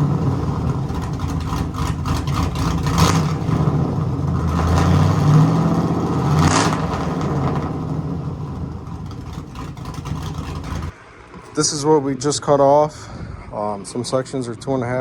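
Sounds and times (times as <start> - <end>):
engine revving and idling: 0.0 - 11.0.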